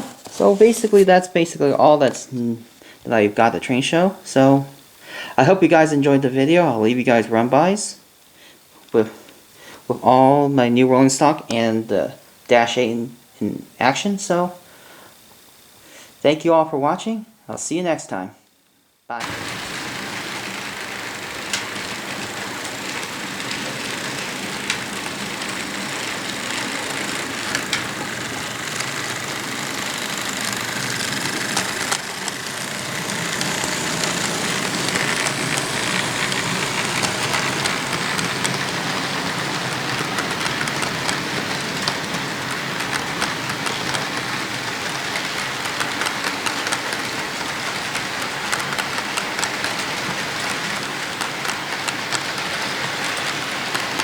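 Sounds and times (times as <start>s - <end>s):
model train rolling on track: 0.0s - 4.8s, 5.4s - 8.0s, 19.1s - 54.0s.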